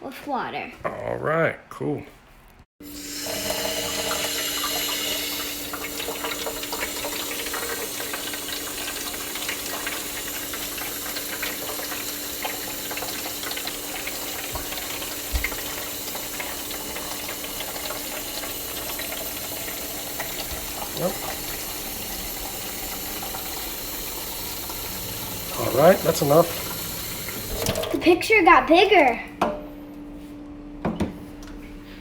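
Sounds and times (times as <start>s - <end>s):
water running into plastic tank: 2.9s - 28.1s.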